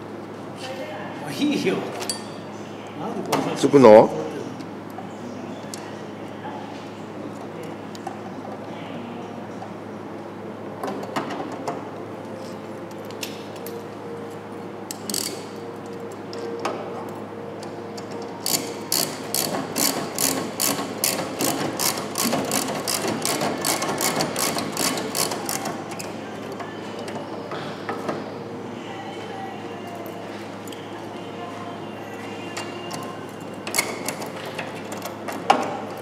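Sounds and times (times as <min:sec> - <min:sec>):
hand ratchet clicking: 0:14.9 - 0:15.4, 0:18.4 - 0:26.1, 0:33.6 - 0:35.1.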